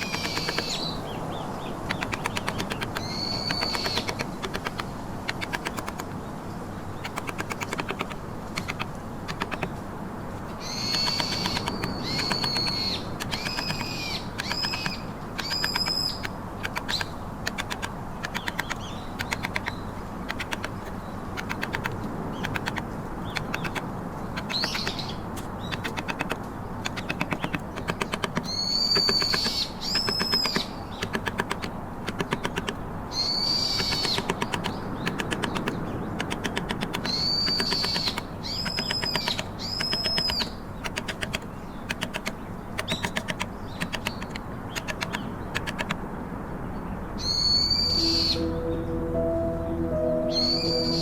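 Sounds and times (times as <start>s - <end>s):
high bird chirping: 0.0s - 6.2s, 10.4s - 45.9s, 47.2s - 51.0s
mallet tapping chisel into wood: 1.9s - 6.1s, 7.0s - 9.7s, 10.9s - 22.8s, 24.4s - 32.8s, 33.8s - 45.9s.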